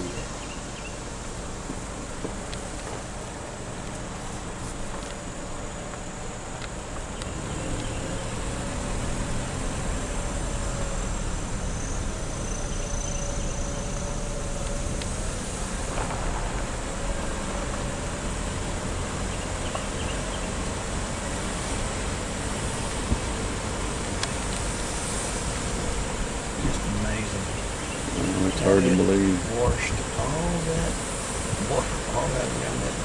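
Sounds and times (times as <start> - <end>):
vehicle engine and tyre rumble: 0.0 - 33.0.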